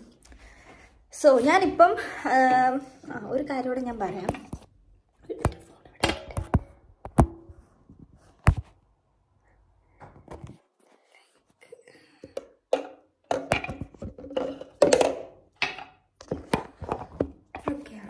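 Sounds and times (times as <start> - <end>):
household handling noises: 0.0 - 8.8, 9.9 - 18.0.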